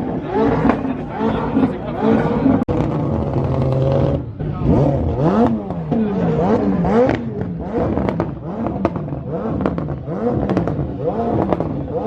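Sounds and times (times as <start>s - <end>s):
car engine revving: 0.0s - 12.0s
exhaust pops and crackles: 2.5s - 12.0s.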